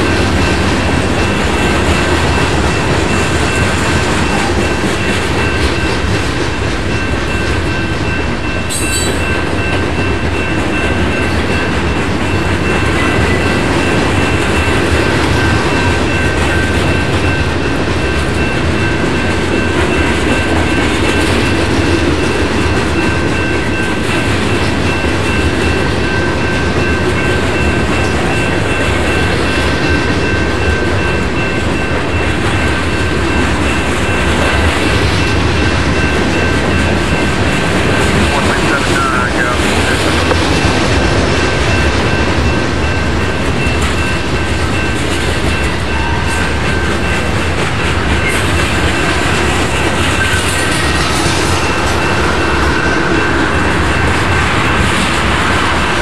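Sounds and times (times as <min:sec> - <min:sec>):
steel wheels rumbling on rail: 0:00.0 - 0:56.0
high-pitched ring: 0:07.0 - 0:11.7.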